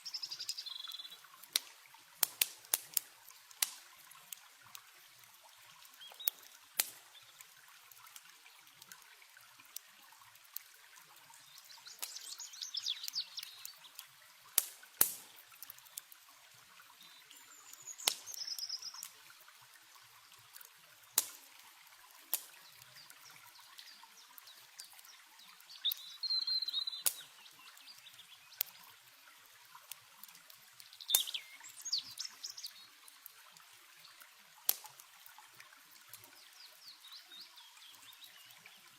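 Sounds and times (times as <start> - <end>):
birds chirping: 0.0 - 1.2, 11.4 - 14.0, 17.0 - 19.1, 22.6 - 28.6, 30.9 - 32.9
campfire crackling and popping: 0.0 - 36.5
river water running: 0.0 - 38.9.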